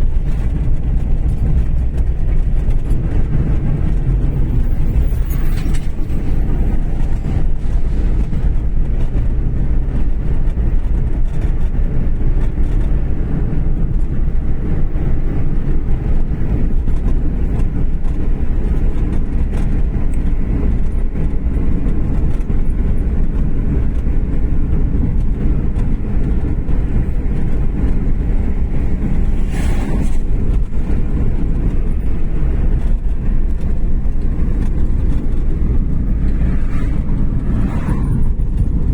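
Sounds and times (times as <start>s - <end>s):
car engine and road noise: 0.0s - 38.9s
brief rush of air: 29.3s - 30.3s.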